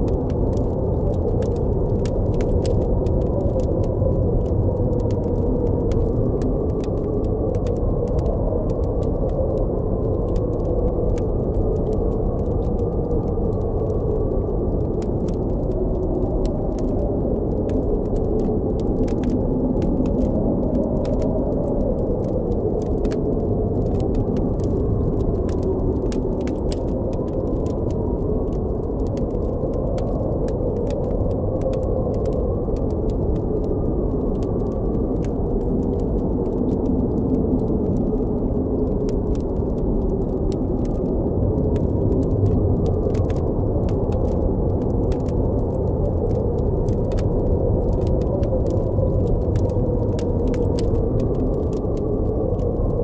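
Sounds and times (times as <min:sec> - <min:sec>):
blizzard wind blowing: 0:00.0 - 0:53.0
campfire crackling: 0:00.0 - 0:53.0.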